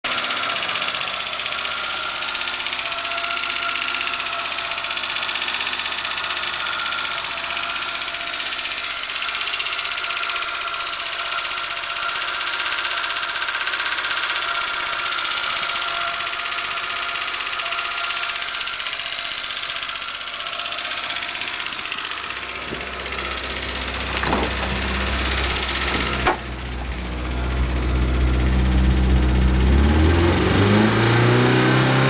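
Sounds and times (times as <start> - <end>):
car engine running: 0.0 - 32.0
fast even ticking: 0.1 - 26.8.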